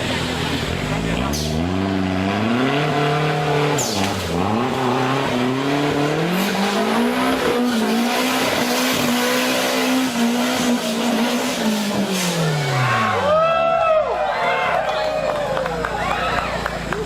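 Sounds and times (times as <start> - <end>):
off-road engine revving hard: 0.0 - 13.6.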